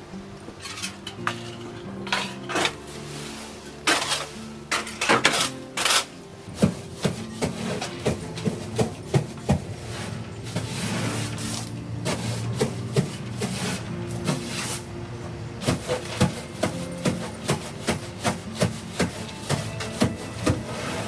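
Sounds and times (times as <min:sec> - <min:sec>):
background music: 0:00.0 - 0:21.0
scraping and knocking: 0:03.9 - 0:14.9, 0:15.6 - 0:21.0.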